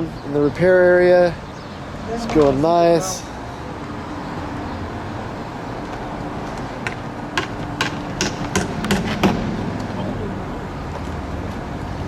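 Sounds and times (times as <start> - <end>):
traffic hum: 0.0 - 12.0
hammer tapping nails: 6.8 - 9.4.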